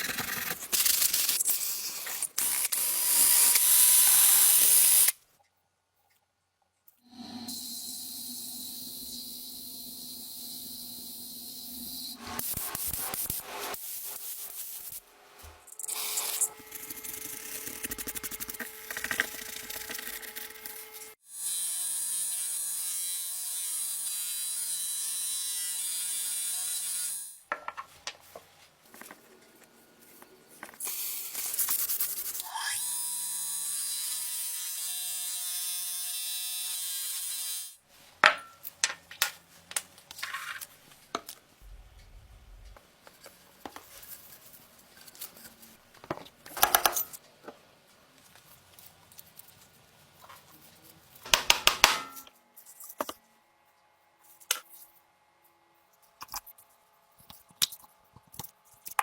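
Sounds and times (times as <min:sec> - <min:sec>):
small electric power tool running: 0:02.4 - 0:05.1.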